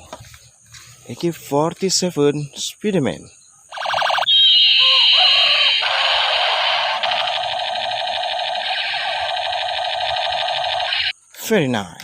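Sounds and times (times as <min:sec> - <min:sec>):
toy gun electronic machine-gun rattle: 0:03.7 - 0:11.1.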